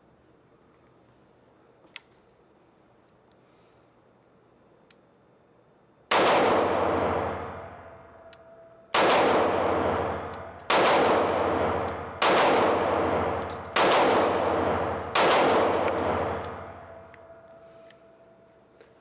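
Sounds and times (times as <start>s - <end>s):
pistol shots: 6.1s - 8.0s, 8.9s - 17.4s.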